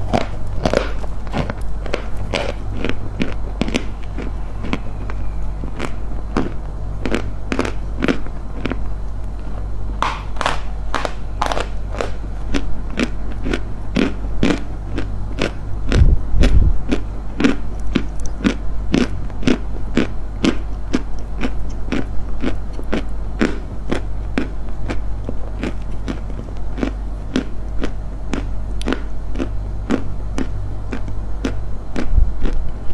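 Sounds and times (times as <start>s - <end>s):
dry crunching: 0.0s - 14.6s
steady low hum: 0.0s - 32.9s.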